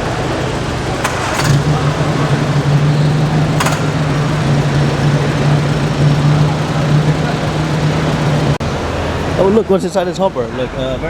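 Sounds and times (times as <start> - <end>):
car engine idling: 0.0 - 8.7
brief clatter: 3.0 - 8.3.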